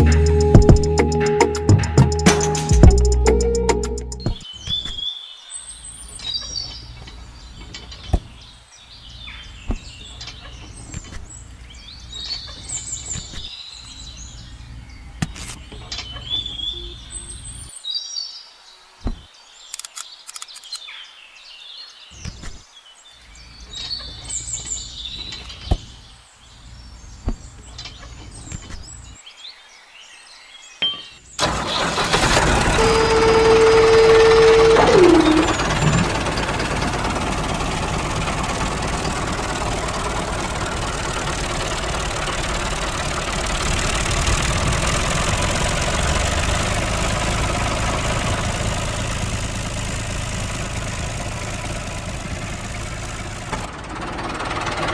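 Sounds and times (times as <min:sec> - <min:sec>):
birds chirping: 0:00.0 - 0:32.2, 0:32.8 - 0:54.9
harsh mechanical rattle: 0:31.4 - 0:54.9.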